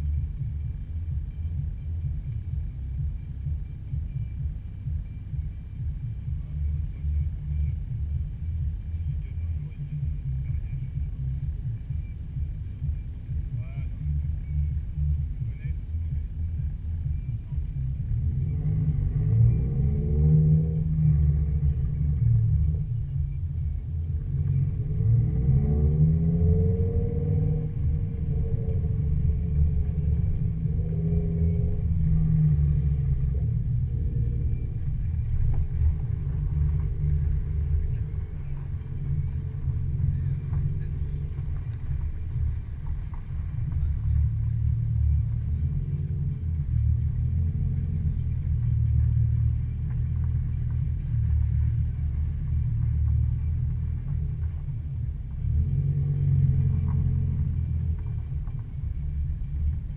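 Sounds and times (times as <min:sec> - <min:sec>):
steady low rumble: 0:00.0 - 0:59.9
car engine driving past: 0:17.1 - 0:59.9.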